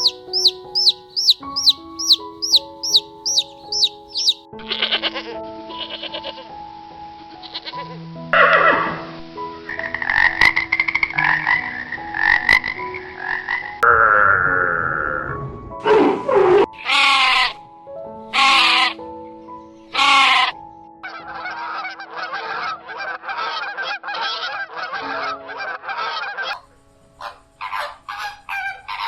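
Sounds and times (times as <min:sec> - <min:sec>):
rattling croak-like calls: 0:00.0 - 0:05.0, 0:09.7 - 0:15.2, 0:16.8 - 0:17.5, 0:18.3 - 0:19.0, 0:19.9 - 0:29.0
high animal chirps: 0:00.0 - 0:06.2, 0:16.8 - 0:17.5, 0:18.4 - 0:19.0, 0:19.9 - 0:20.5, 0:27.2 - 0:29.0
background music: 0:00.0 - 0:29.0.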